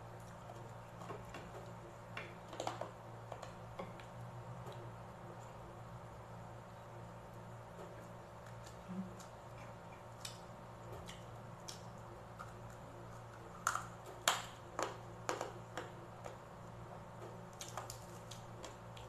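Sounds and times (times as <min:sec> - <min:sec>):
low steady hum: 0:00.0 - 0:19.0
crunching crispy pork skin: 0:17.5 - 0:19.0.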